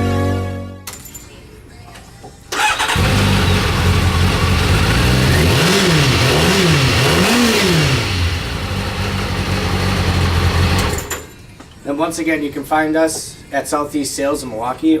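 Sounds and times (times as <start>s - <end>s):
motorcycle engine idling and revving: 2.6s - 11.1s.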